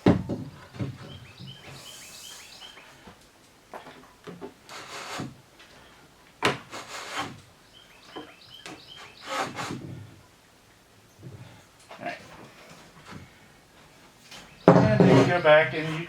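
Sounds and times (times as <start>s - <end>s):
faint bird chirps: 1.0s - 3.0s, 7.6s - 9.6s
steel tube scraping on wood: 4.7s - 5.4s, 6.6s - 7.4s, 8.8s - 10.1s.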